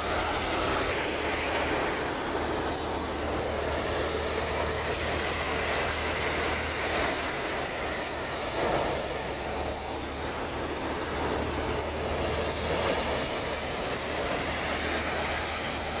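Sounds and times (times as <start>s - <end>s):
threshing drum rushing hiss: 0.0s - 16.0s
tractor engine hum: 0.0s - 16.0s.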